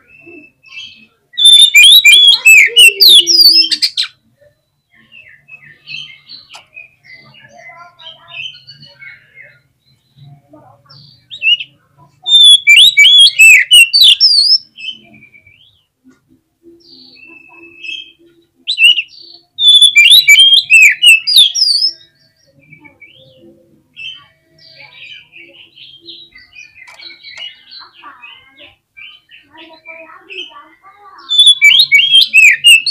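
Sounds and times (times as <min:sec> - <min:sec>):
bird singing whistled notes: 0:00.0 - 0:04.2, 0:12.3 - 0:15.8, 0:16.7 - 0:23.3, 0:31.2 - 0:32.9.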